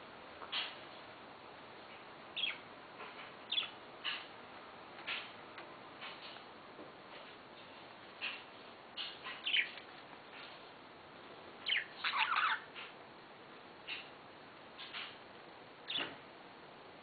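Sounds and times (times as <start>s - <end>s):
budgerigars chirping: 2.4s - 2.6s, 3.4s - 4.3s, 9.0s - 9.8s, 11.6s - 12.8s, 15.9s - 16.1s.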